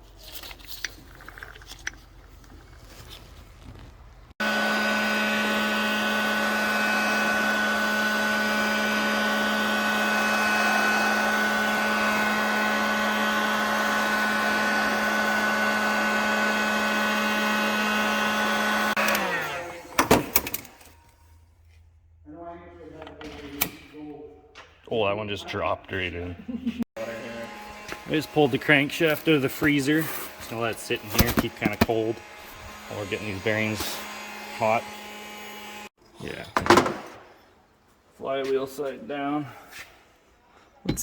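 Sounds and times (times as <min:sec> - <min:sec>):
heat gun running: 0:04.4 - 0:21.0, 0:27.0 - 0:36.0.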